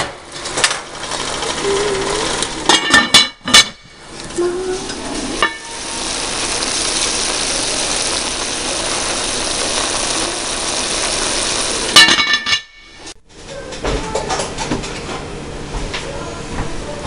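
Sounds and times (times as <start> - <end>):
chicken sizzling in a pot: 4.0 - 13.2.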